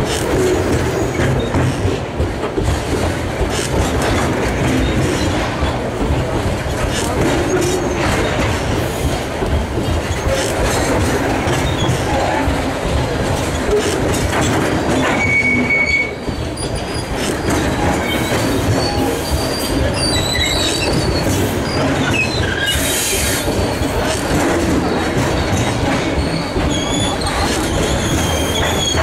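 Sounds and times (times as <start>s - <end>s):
train wheels rumbling on rail: 0.0s - 29.0s
wheel squeals: 13.4s - 29.0s.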